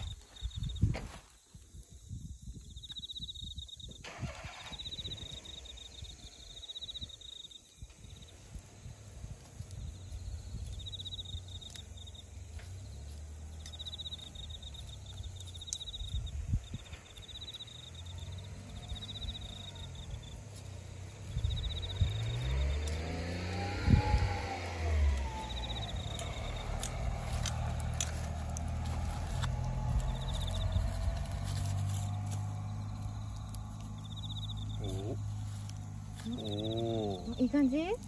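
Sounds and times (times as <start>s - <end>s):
insects trilling: 0.0s - 38.0s
low engine rumble: 7.8s - 38.0s
campfire crackling and popping: 25.4s - 34.2s.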